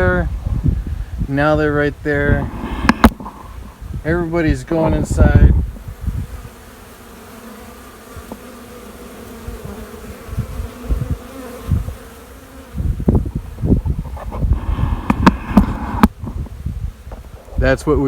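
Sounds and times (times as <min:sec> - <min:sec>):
bee swarm buzzing: 0:00.0 - 0:17.6.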